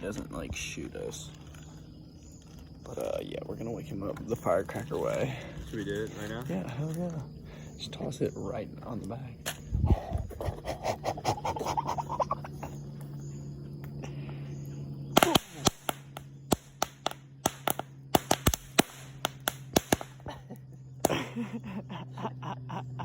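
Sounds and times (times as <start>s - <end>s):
firecrackers bangs and pops: 15.2s - 20.3s, 21.0s - 21.3s.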